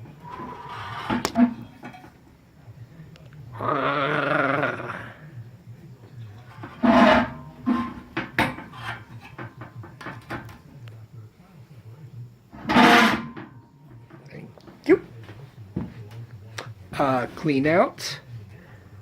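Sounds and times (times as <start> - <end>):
metal parts clinking and scraping: 6.6 - 9.4.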